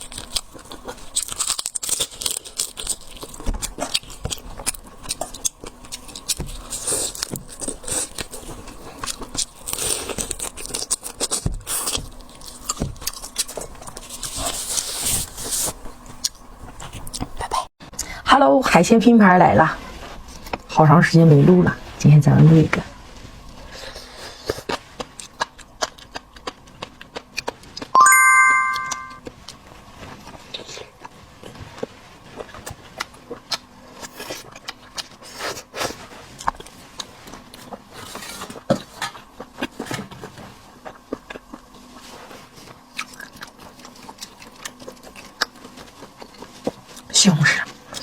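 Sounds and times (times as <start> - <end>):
bright ringing chime: 28.0 - 29.2.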